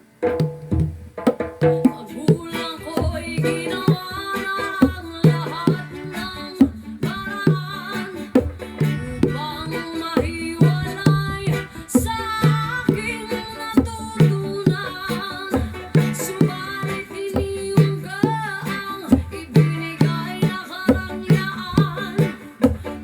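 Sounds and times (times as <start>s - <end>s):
bongos playing: 0.0s - 23.0s
person singing: 1.7s - 23.0s.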